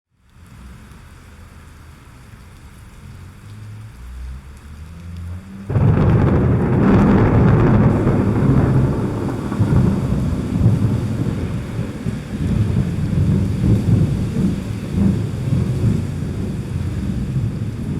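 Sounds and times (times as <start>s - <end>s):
rain falling: 0.2s - 17.9s
thunder rumbling: 5.0s - 17.9s
loud thunderclap: 5.7s - 17.9s.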